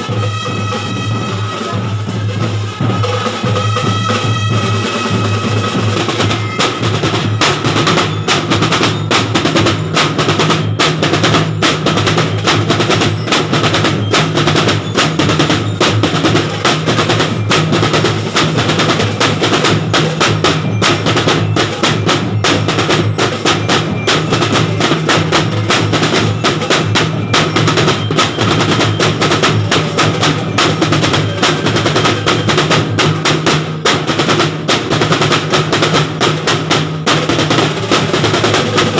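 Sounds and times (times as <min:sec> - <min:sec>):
marching drumline playing: 0:00.0 - 0:38.9.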